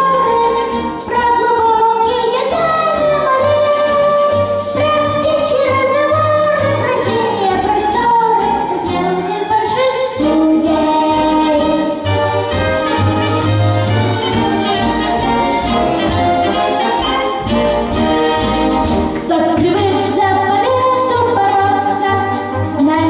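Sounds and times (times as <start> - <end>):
person singing with vibrato: 0.0 - 12.0
instrumental accompaniment: 0.0 - 23.0.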